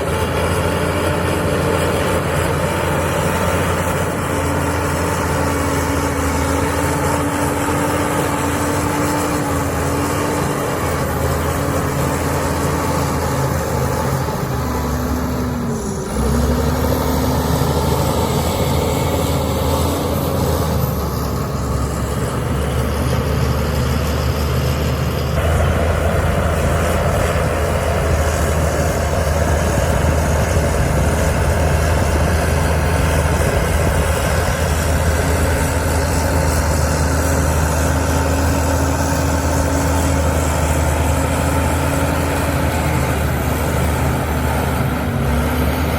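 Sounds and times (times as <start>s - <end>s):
heavy diesel engine under load: 0.0s - 45.9s.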